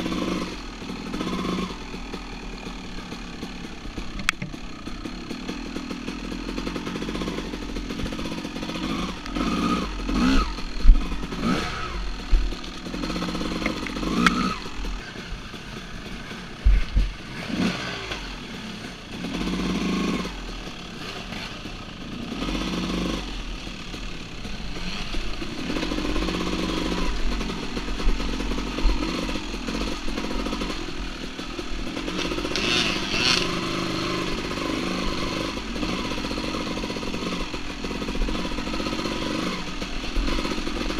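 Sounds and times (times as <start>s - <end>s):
dirt bike engine revving: 0.0s - 40.9s
sharp knocks and thumps: 4.1s - 4.6s, 16.6s - 17.2s.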